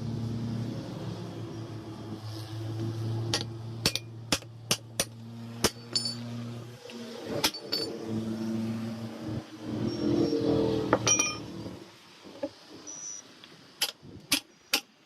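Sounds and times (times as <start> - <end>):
hand tools striking metal rim: 3.3 - 6.3, 7.4 - 8.0, 10.9 - 11.5.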